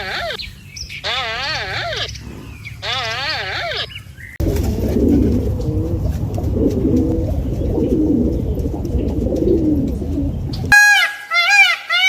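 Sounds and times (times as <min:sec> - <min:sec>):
pigeons cooing: 0:00.0 - 0:10.8
steady low rumble: 0:01.9 - 0:10.8.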